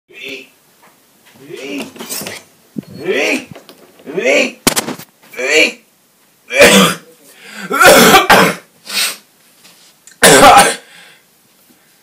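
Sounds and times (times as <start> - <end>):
man coughing and clearing throat: 6.5 - 7.1, 7.7 - 8.7, 10.2 - 10.9.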